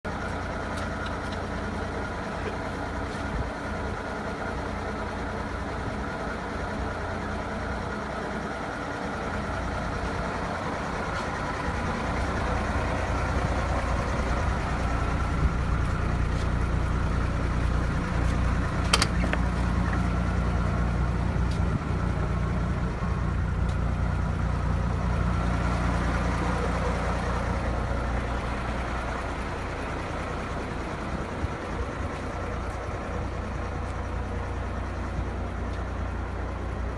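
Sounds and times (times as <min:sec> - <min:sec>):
diesel truck engine idling: 0:00.1 - 0:36.9
sharp click: 0:18.8 - 0:19.5.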